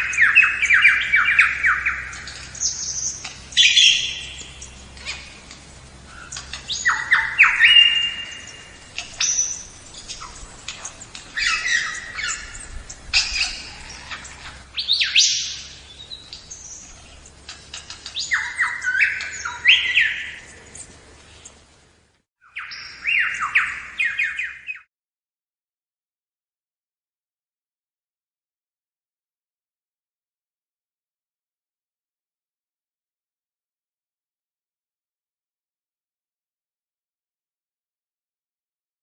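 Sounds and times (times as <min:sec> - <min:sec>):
birds chirping and squawking: 0:00.0 - 0:21.8, 0:22.5 - 0:24.8.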